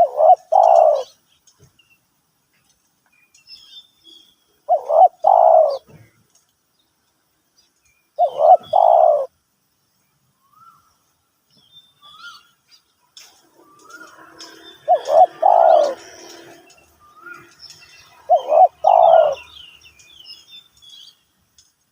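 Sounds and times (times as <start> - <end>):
dove cooing: 0.0 - 1.2, 4.7 - 6.0, 8.2 - 9.3, 13.4 - 19.6
small birds chirping faintly: 0.0 - 21.9.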